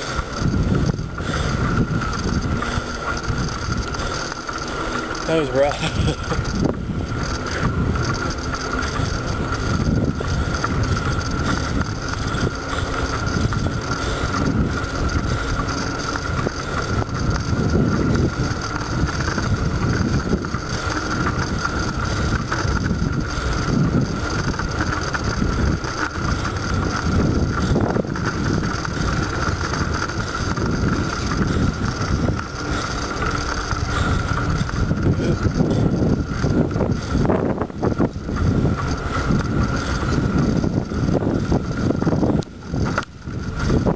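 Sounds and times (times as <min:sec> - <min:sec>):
tyre and road noise: 0:00.0 - 0:43.9
wind buffeting microphone: 0:00.0 - 0:43.9.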